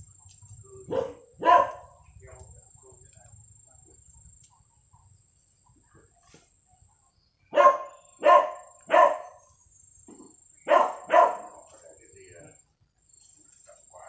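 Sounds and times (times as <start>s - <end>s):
dog barking: 0.8s - 2.0s, 7.5s - 9.4s, 10.6s - 11.7s.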